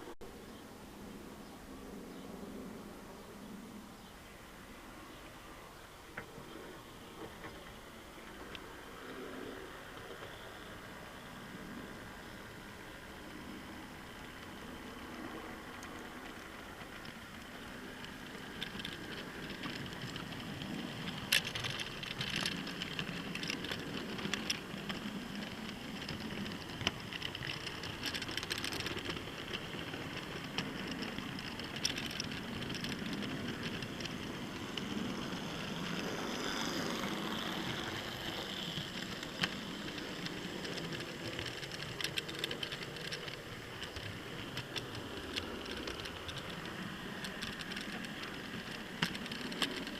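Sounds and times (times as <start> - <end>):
model train rolling rumble: 4.8 - 49.9
sharp track clicks: 11.9 - 49.9.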